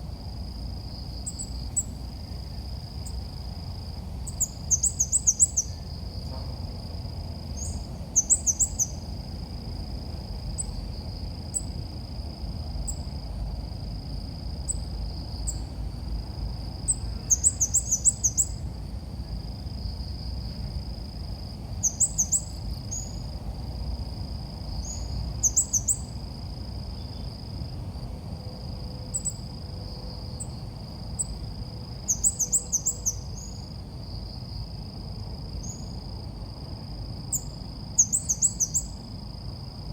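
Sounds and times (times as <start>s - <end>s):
bird high chirps: 16.9s - 18.6s.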